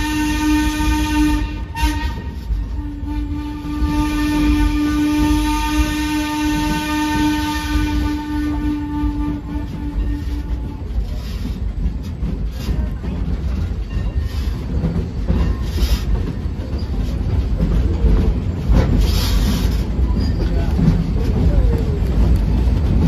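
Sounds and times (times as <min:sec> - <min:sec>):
train rumble and clickety-clack: 0:00.0 - 0:23.0.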